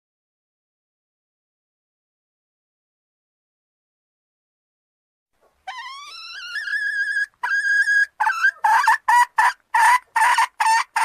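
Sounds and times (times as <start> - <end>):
junglefowl clucking calls: 5.7 - 11.0
junglefowl long rising call: 5.7 - 11.0.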